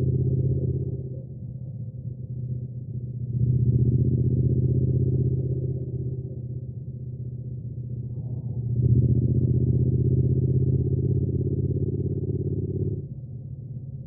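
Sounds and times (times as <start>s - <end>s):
motorcycle engine running: 3.2s - 13.8s.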